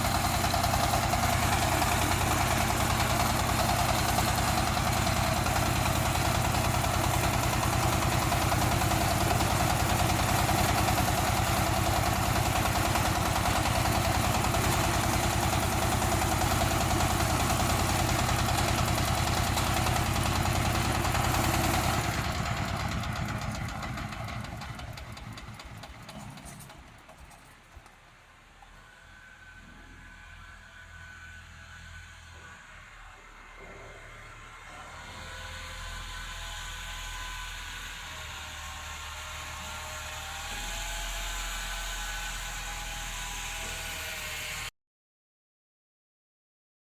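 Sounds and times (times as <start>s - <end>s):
tractor engine pulsing: 0.0s - 28.7s.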